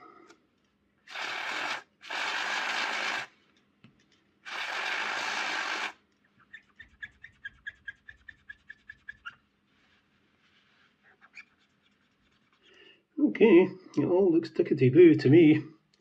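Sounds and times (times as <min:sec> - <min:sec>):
aerosol spray hissing: 0:01.1 - 0:03.3, 0:04.5 - 0:06.0.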